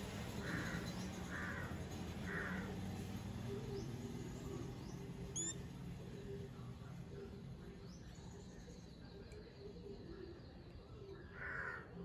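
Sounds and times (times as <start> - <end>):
low background hum: 0.0 - 11.1
birds cawing: 0.4 - 2.7, 11.4 - 12.0
bird whistled chirp: 5.4 - 5.6.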